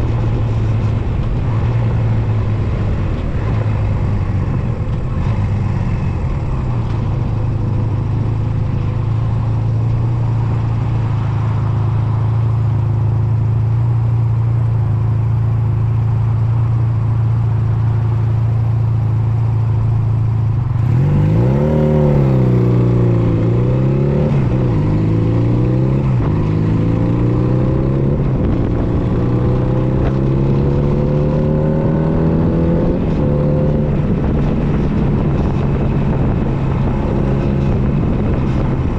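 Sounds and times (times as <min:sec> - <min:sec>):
motorcycle engine revving: 0:16.1 - 0:38.9.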